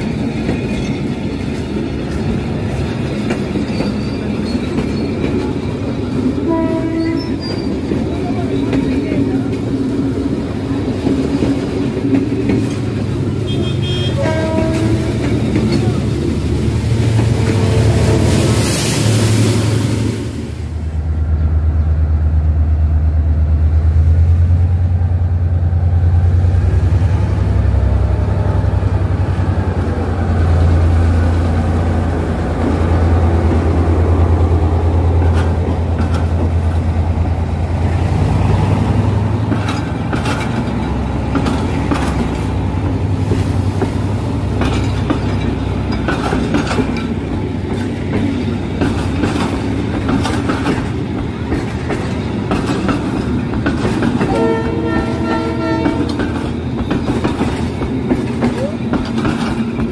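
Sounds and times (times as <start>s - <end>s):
locomotive engine drone: 0.0s - 59.9s
train horn: 6.4s - 7.6s, 13.4s - 15.4s, 17.2s - 18.6s, 54.2s - 56.3s
wheels clicking over rail joints: 34.8s - 37.2s, 38.9s - 59.9s.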